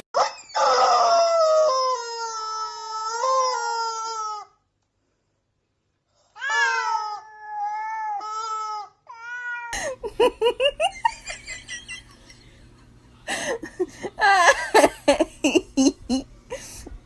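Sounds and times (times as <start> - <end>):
cat yowling: 6.4 - 9.8
short rising cat cries: 6.4 - 9.8
low steady hum: 9.8 - 17.0.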